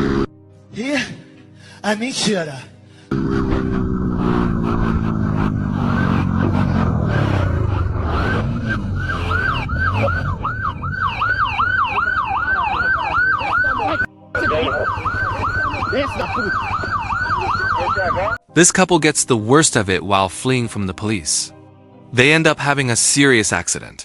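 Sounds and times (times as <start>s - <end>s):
vehicle engine slowing: 3.1s - 13.6s, 14.4s - 17.6s
police siren yelping: 3.3s - 18.4s.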